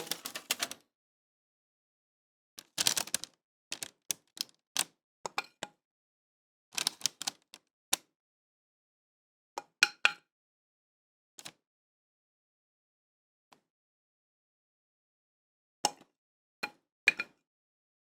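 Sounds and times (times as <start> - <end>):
kitchen things clicking and tapping: 0.0 - 0.8.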